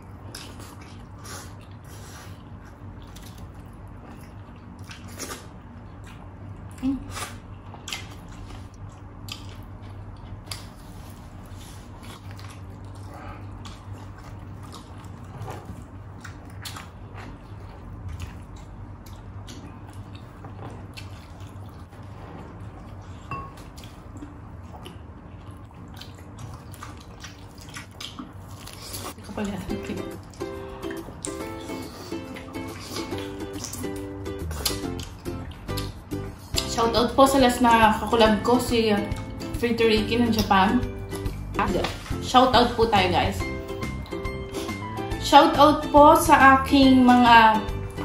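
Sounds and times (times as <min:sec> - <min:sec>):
wet chewing: 0:00.0 - 0:21.9, 0:22.8 - 0:36.7
steady low hum: 0:00.0 - 0:48.0
lip smacks and mouth clicks: 0:32.4 - 0:36.7.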